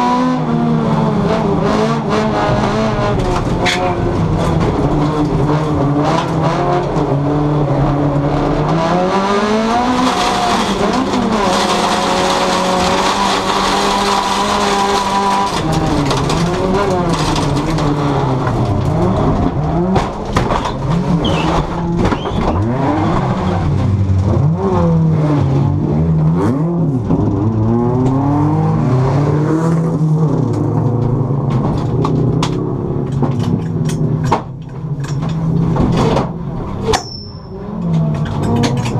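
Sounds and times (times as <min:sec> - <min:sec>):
car engine revving hard: 0:00.0 - 0:20.2, 0:22.6 - 0:31.4
rattling clicks and knocks: 0:10.2 - 0:22.8, 0:30.5 - 0:38.9.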